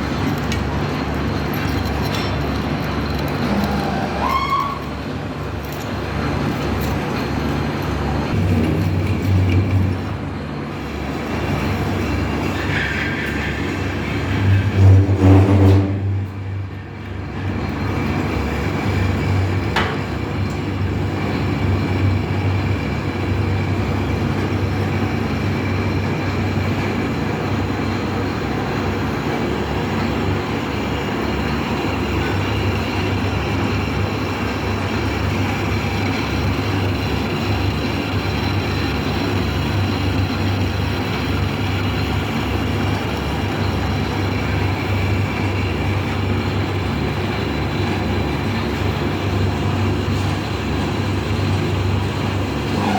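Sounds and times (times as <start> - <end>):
metal lathe humming: 0.0 - 12.7.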